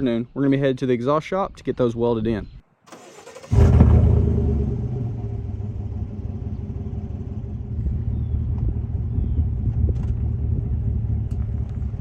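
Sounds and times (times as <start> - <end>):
truck engine starting and idling: 2.9 - 12.0.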